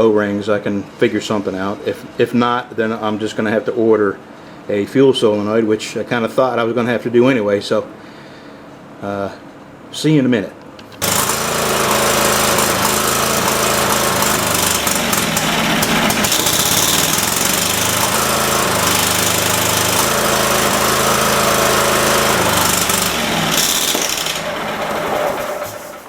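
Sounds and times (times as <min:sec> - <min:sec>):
engine running unevenly: 0:11.0 - 0:26.0.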